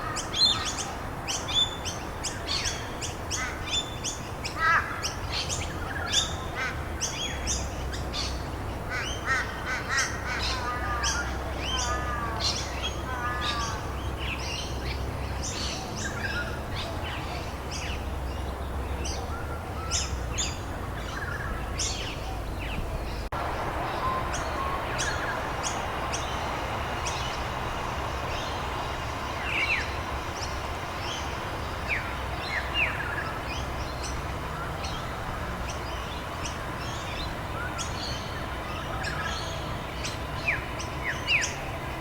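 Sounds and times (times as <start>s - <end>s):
steady background hiss: 0.0s - 42.0s
birds chirping and whistling: 19.8s - 35.1s.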